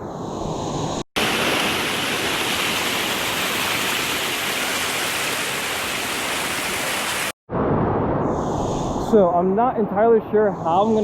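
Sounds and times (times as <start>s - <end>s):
waterfall rushing: 1.2s - 7.3s.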